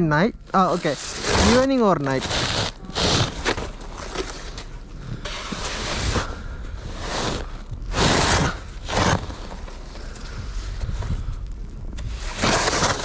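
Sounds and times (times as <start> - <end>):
snow pusher scraping snow: 0.6 - 4.3, 5.3 - 9.7, 12.1 - 13.0
wind rumble on microphone: 4.8 - 13.0.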